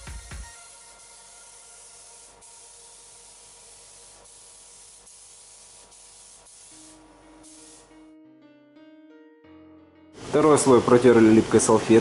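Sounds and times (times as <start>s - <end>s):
spray gun hissing: 0.0s - 8.0s.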